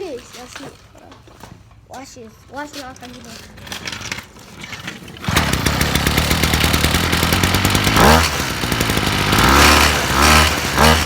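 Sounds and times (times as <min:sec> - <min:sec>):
dirt bike engine idling and revving: 0:03.6 - 0:11.0.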